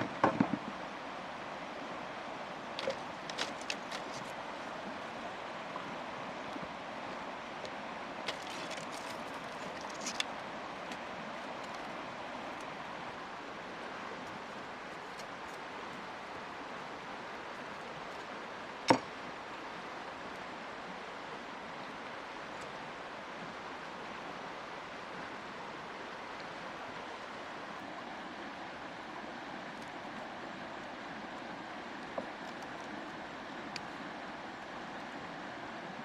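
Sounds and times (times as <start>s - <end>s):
river water rushing: 0.0s - 36.0s.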